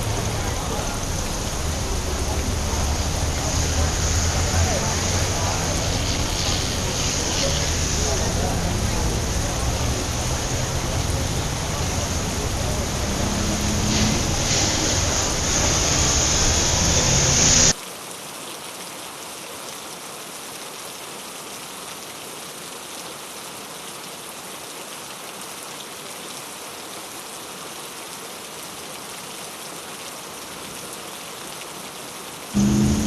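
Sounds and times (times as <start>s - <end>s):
steady rain on a street: 0.0s - 33.0s
low rumble: 32.6s - 33.0s.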